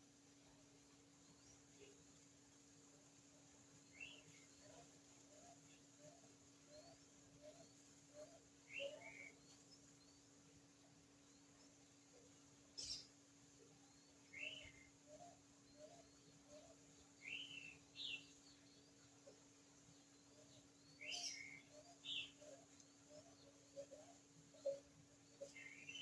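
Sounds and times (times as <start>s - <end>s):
bird chirps: 3.9s - 10.3s, 12.7s - 26.0s.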